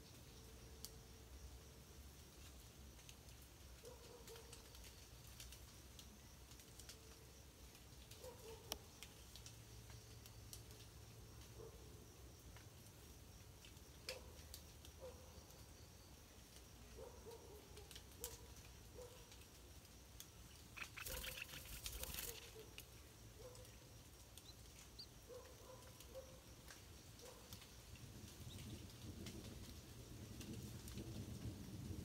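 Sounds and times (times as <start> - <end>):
raindrops dripping on leaves: 0.1 - 32.0
soft short bird peeps: 20.5 - 22.6.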